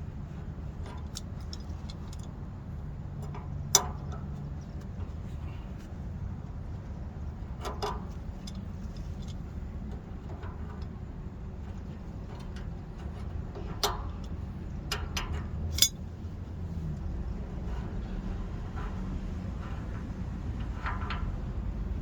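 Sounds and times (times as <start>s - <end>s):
metal tools clinking: 15.7s - 16.0s.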